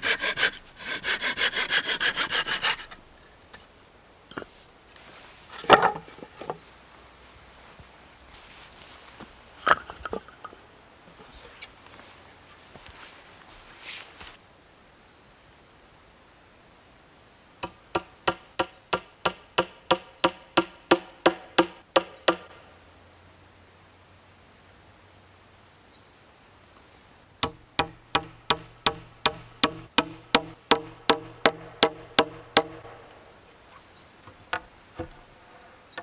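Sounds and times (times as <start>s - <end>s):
hand tool striking wood: 5.6s - 6.6s, 17.6s - 22.6s, 27.4s - 33.2s.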